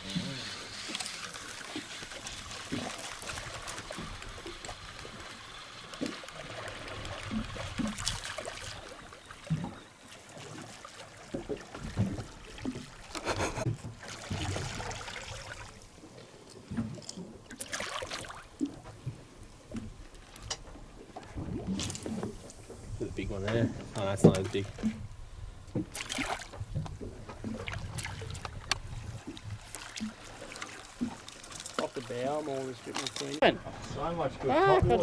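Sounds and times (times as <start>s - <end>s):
water lapping against boat hull: 0.0s - 35.0s
loud water splashes: 25.9s - 26.5s.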